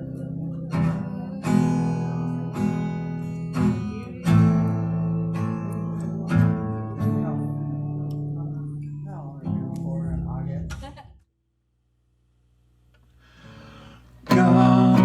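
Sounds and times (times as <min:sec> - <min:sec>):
acoustic guitar chords strummed: 0:13.4 - 0:15.0.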